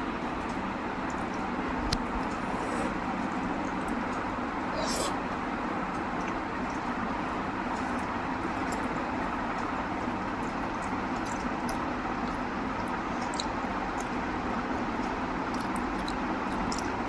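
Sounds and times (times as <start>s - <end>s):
steady background noise: 0.0s - 17.0s
person chewing food: 10.4s - 14.2s, 15.0s - 17.0s.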